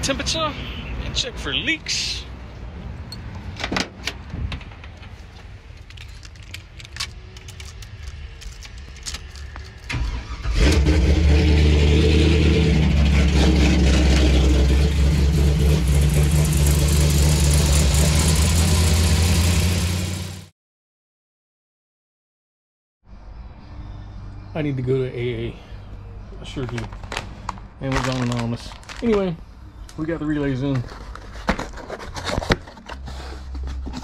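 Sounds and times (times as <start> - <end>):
engine cranking and running: 5.9 - 20.4.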